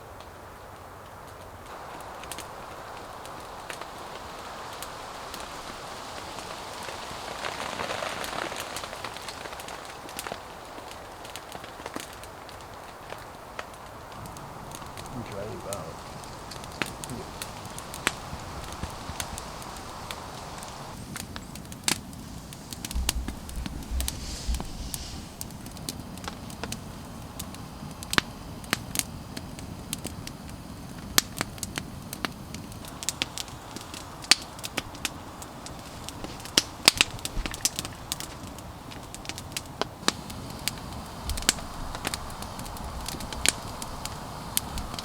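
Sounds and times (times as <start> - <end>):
campfire crackling and popping: 0.0 - 45.0
low rumble: 22.6 - 25.7.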